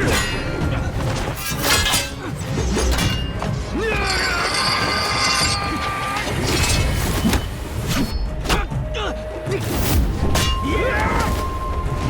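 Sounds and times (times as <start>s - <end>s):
dramatic music: 0.0s - 12.0s
bright metallic ringing: 4.1s - 6.1s.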